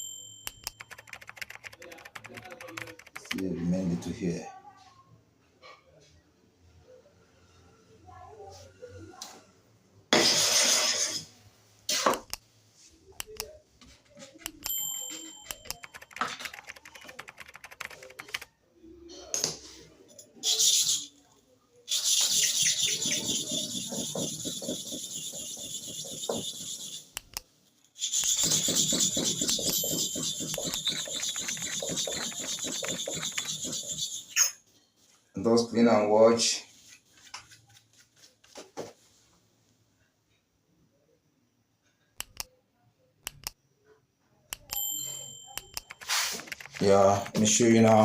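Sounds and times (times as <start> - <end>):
clipper blade being scrubbed: 28.0 - 34.5.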